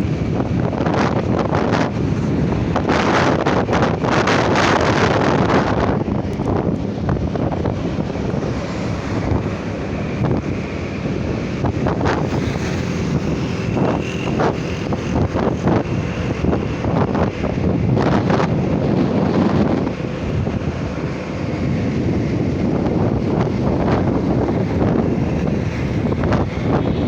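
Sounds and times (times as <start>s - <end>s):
road noise: 0.0s - 27.0s
wind buffeting microphone: 0.0s - 27.0s.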